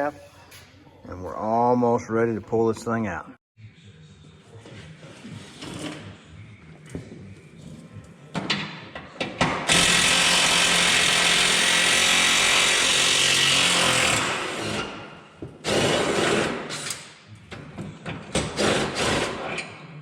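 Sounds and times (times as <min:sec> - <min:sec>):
power tool running: 0:09.7 - 0:14.8.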